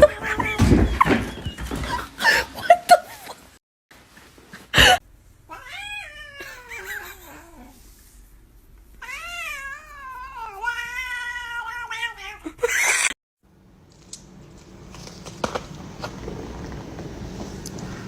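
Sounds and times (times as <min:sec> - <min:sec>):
cat yowling: 0:00.0 - 0:01.1, 0:05.5 - 0:07.8, 0:09.0 - 0:13.1.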